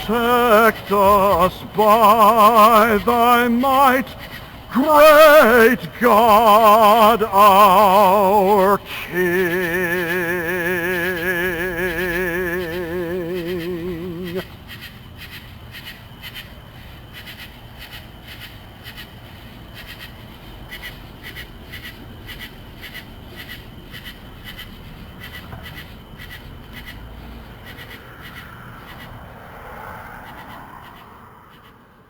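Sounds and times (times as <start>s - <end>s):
pulsing chirp: 0.0s - 19.1s.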